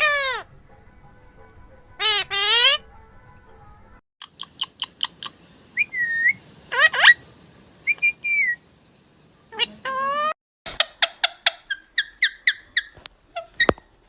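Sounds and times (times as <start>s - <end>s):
parrot squawk: 0.0s - 0.5s, 2.0s - 2.9s, 4.2s - 7.2s, 7.9s - 8.6s, 9.5s - 13.8s
parrot chirping and whistling: 4.2s - 8.6s, 9.5s - 13.8s.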